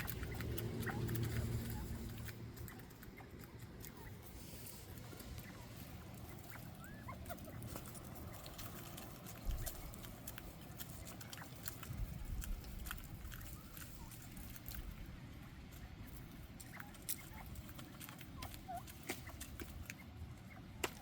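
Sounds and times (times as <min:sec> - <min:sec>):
quail pecking and crunching food: 0:00.0 - 0:21.0
wind rumble on microphone: 0:11.7 - 0:13.5.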